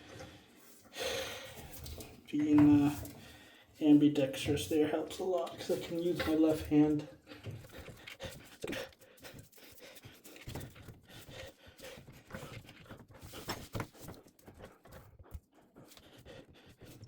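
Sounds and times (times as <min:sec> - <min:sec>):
person breathing hard: 0:00.0 - 0:01.7, 0:07.2 - 0:13.6, 0:15.6 - 0:17.0
tools knocking and scraping metal: 0:05.4 - 0:08.1.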